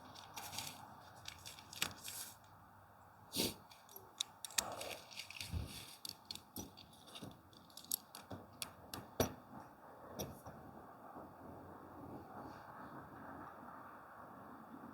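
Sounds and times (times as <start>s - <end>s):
tent fabric rustling: 0.0s - 2.5s.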